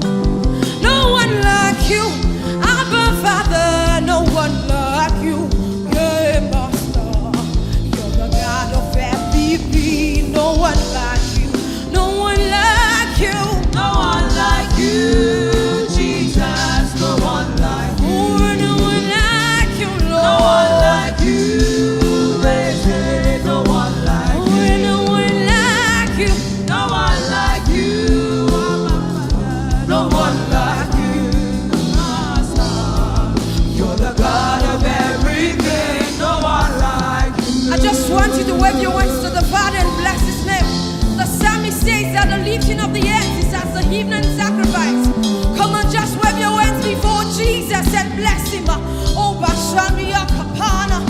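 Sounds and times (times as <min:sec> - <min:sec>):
live gospel band music: 0:00.0 - 0:51.0
person singing: 0:17.8 - 0:26.6, 0:36.8 - 0:40.5.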